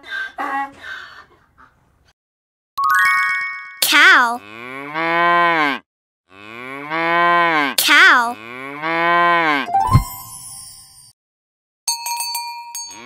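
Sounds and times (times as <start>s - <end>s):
cow mooing: 4.4s - 9.7s.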